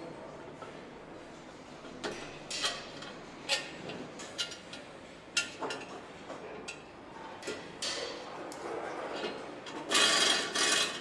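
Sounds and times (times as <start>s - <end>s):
workshop background noise: 0.0s - 11.0s.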